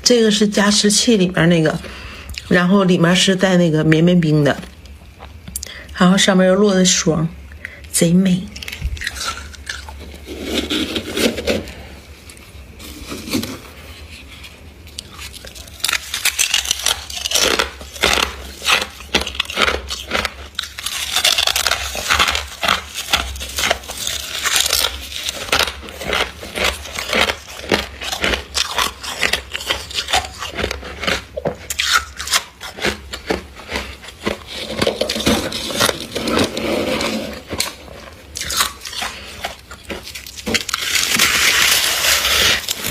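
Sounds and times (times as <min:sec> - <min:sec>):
ice being crunched: 0:15.0 - 0:42.9.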